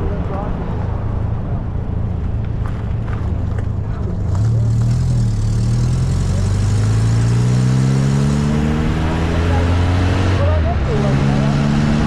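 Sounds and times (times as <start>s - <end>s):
car engine accelerating: 2.6s - 12.0s.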